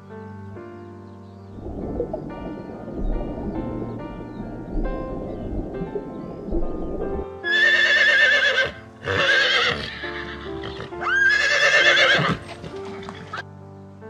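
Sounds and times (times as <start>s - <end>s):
background music: 0.0s - 14.0s
horse whinnying: 7.4s - 13.4s.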